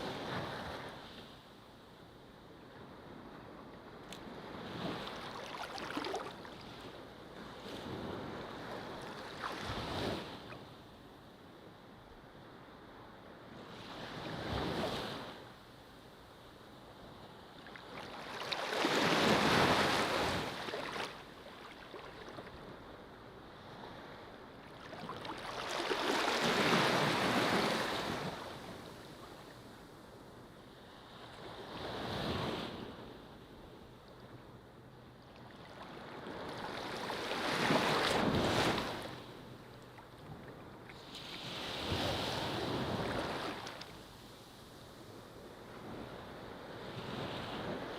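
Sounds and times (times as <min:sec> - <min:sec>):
ocean waves washing onto beach: 0:17.8 - 0:22.7, 0:23.8 - 0:29.7.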